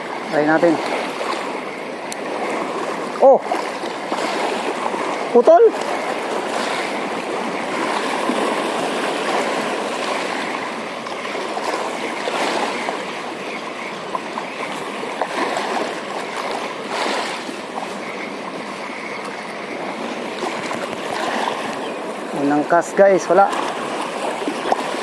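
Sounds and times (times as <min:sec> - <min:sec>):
water splashing over rocks: 0:00.0 - 0:17.9, 0:19.8 - 0:25.0.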